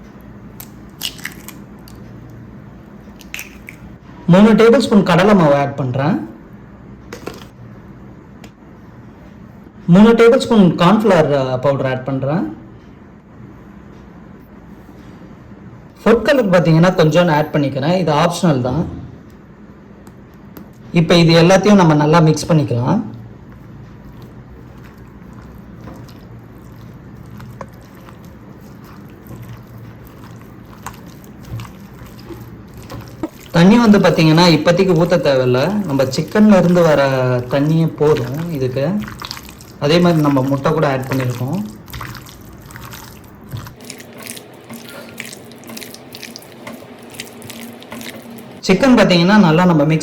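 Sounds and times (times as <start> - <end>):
wet squelching of mixing: 0.0 - 4.0, 23.2 - 49.6.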